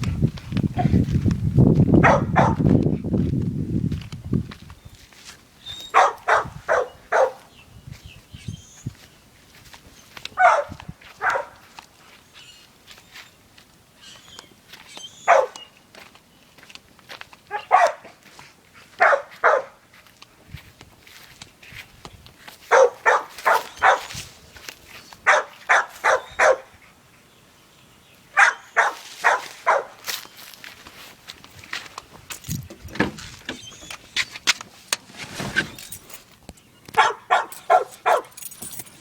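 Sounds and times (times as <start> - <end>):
dog barking: 2.0 - 2.7, 5.9 - 7.5, 10.4 - 11.7, 15.2 - 15.6, 17.5 - 18.2, 19.0 - 19.8, 22.7 - 24.2, 25.2 - 26.7, 28.4 - 30.0, 37.0 - 38.4.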